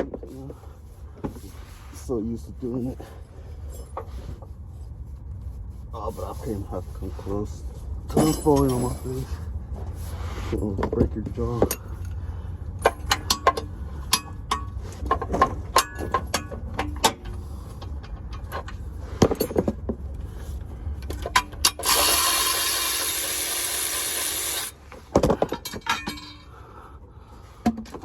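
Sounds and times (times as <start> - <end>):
ratchet clicks and clanks: 21.0 - 24.8.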